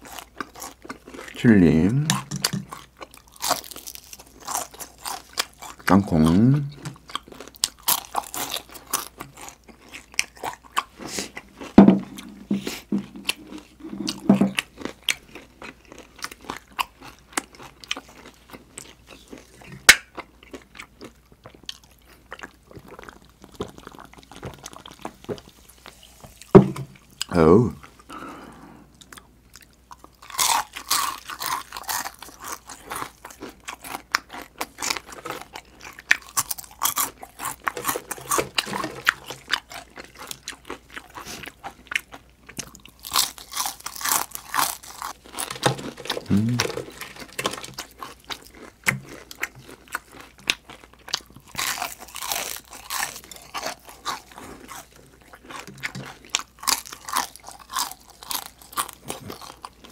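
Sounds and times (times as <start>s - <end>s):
crunching fried chicken skin: 0.0s - 11.8s, 29.1s - 59.9s.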